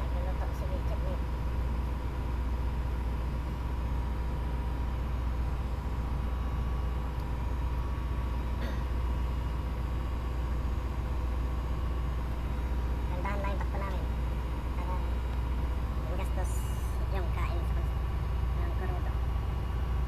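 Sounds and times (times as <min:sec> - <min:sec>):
boat diesel engine drone: 0:00.0 - 0:20.0
higher hum: 0:00.0 - 0:20.0.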